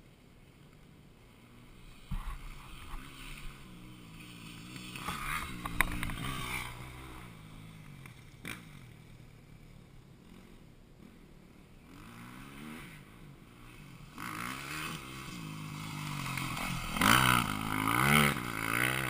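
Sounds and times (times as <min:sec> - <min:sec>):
dirt bike engine revving: 0:01.5 - 0:09.2, 0:10.2 - 0:19.0.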